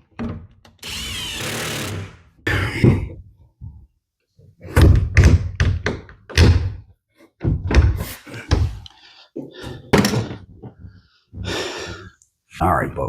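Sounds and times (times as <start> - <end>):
heavy wooden thunks and knocks: 4.7 - 6.8, 7.4 - 8.8.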